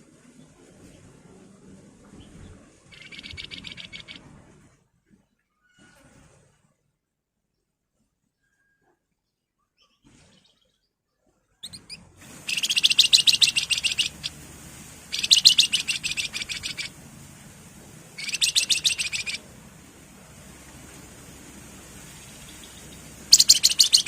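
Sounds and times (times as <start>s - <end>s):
bird chirps: 2.9s - 4.2s, 11.6s - 14.4s, 15.1s - 16.9s, 18.2s - 19.4s, 22.2s - 24.0s
bird singing rattling notes: 2.9s - 4.2s, 11.6s - 14.4s, 15.1s - 17.0s, 18.2s - 19.4s, 22.2s - 24.0s.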